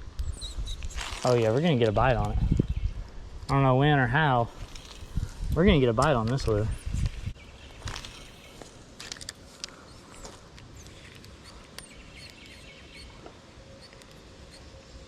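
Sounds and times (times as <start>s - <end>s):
outdoor background hiss: 0.0s - 15.0s
small birds chirping: 0.2s - 3.1s, 6.1s - 8.9s, 9.6s - 15.0s.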